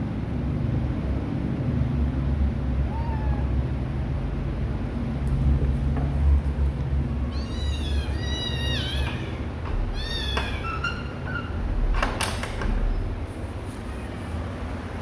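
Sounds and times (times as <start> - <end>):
kittens meowing: 2.8 - 3.7, 7.1 - 12.0.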